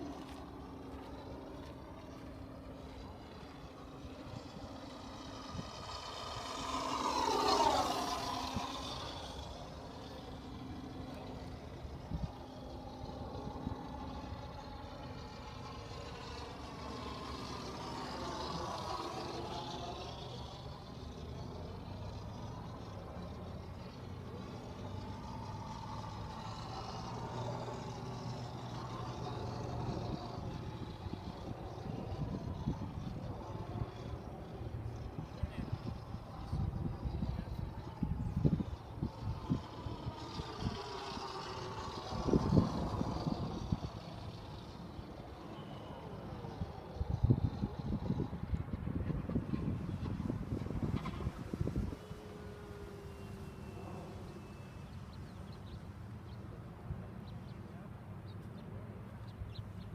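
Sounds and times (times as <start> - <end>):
model plane flying past: 0.0 - 59.9
wavering whine: 0.0 - 59.9.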